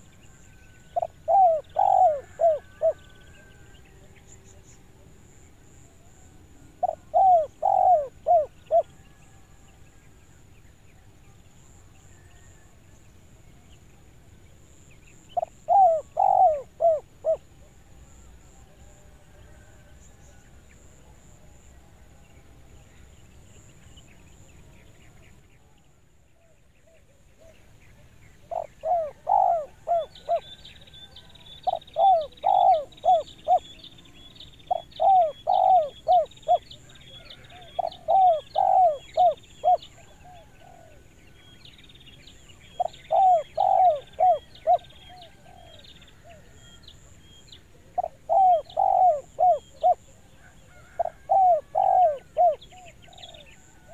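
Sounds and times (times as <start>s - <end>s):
dove cooing: 0.9s - 3.4s, 6.7s - 9.0s, 15.4s - 17.8s, 28.4s - 33.8s, 34.6s - 41.1s, 42.8s - 47.2s, 47.8s - 53.9s
small bird chirping: 28.3s - 40.2s, 41.4s - 50.2s.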